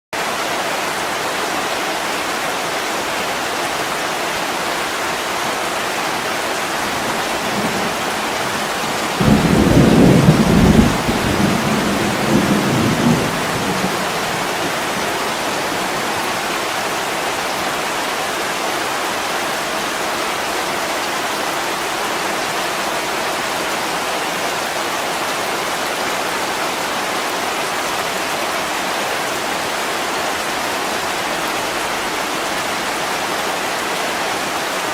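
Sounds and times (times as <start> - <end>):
heavy rain on a window: 0.2 - 34.9
thunderclap rumbling: 6.9 - 16.1.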